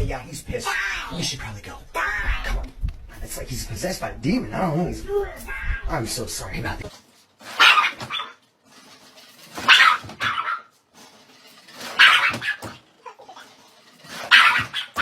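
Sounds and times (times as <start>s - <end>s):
dog barking: 7.6s - 8.4s, 9.6s - 10.7s, 11.9s - 12.7s, 14.3s - 15.0s.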